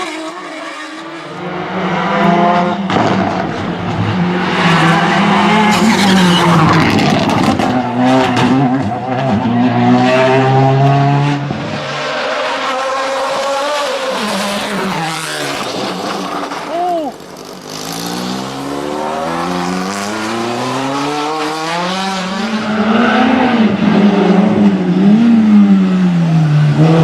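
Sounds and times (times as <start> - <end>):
car engine revving: 0.0 - 27.0
road and tyre noise: 0.0 - 27.0.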